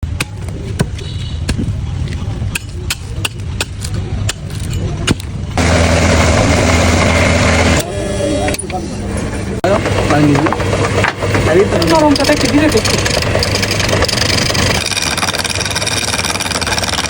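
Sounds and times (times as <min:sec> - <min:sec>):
electric power tool running: 0:05.6 - 0:08.5, 0:11.8 - 0:17.0.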